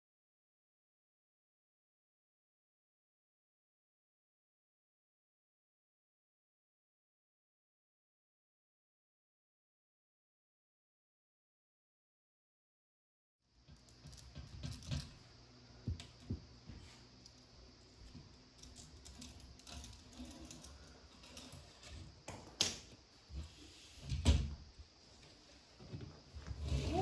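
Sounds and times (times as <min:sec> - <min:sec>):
clicks and knocks of small tools: 0:18.1 - 0:23.0.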